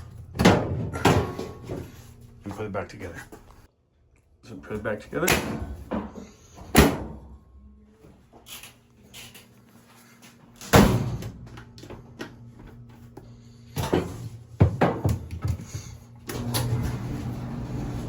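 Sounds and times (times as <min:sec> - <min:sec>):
dryer panels knocking and clacking: 0:00.3 - 0:01.8, 0:13.8 - 0:15.6.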